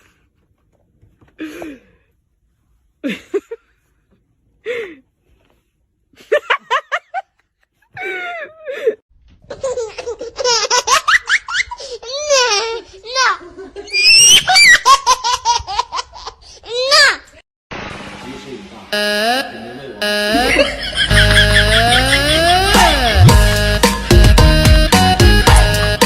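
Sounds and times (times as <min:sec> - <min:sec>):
person laughing: 0:07.9 - 0:09.0, 0:20.3 - 0:26.0.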